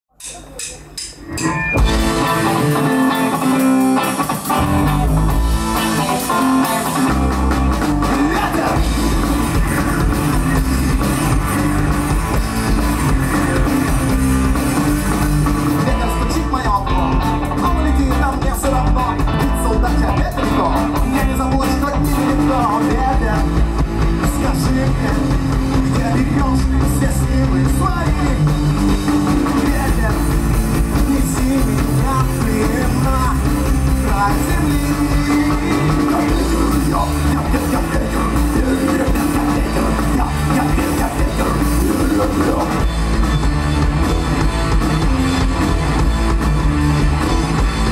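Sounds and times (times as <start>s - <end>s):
rock band playing: 0.1s - 47.9s
person singing: 15.8s - 23.6s, 24.2s - 28.6s, 29.4s - 42.9s.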